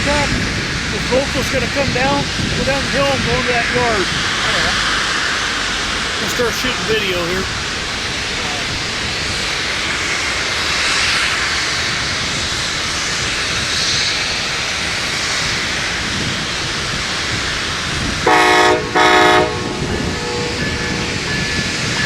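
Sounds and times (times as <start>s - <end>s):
passenger train rushing past: 0.0s - 22.0s
train horn blasts: 18.2s - 21.6s.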